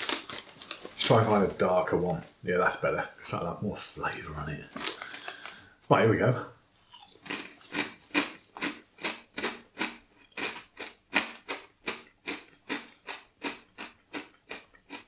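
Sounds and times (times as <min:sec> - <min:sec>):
person chewing crunchy chip: 0:00.0 - 0:01.1, 0:04.8 - 0:05.6, 0:06.8 - 0:15.0.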